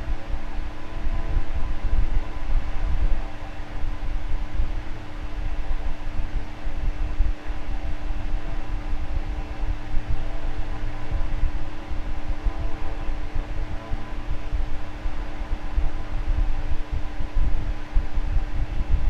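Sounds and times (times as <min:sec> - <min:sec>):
electric fan running: 0:00.0 - 0:19.0.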